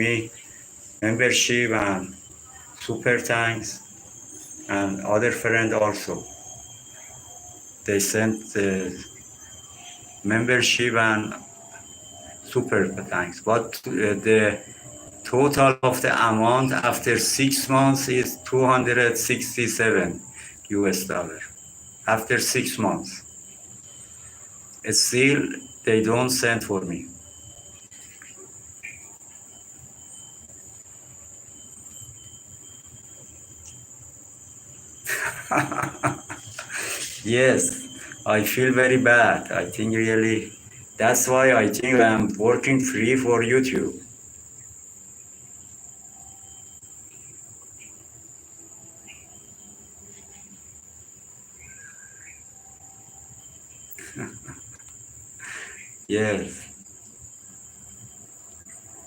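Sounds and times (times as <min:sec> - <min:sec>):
insect chirring: 0:00.0 - 0:59.0
low background noise: 0:00.0 - 0:59.0
faint short calls: 0:35.1 - 0:42.4.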